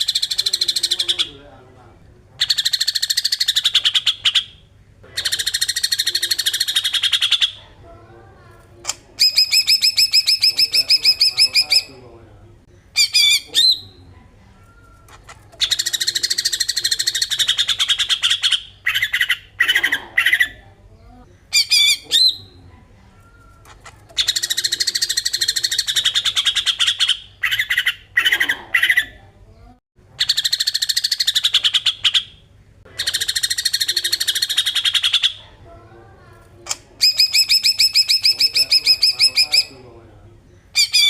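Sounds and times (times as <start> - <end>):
whistled bird phrases: 9.2 - 11.9, 13.0 - 14.0, 21.5 - 22.6, 37.0 - 39.8, 40.8 - 41.0.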